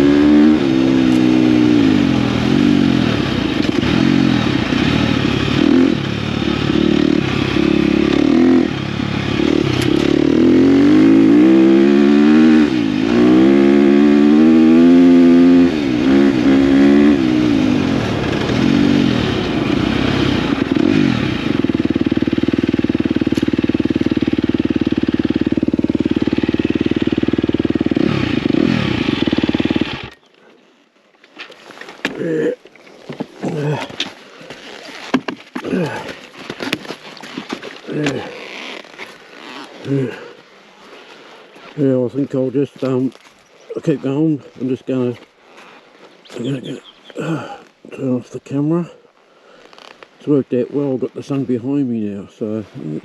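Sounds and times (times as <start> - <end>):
dirt bike engine revving: 0.0 - 30.3, 35.6 - 36.1, 37.8 - 40.4.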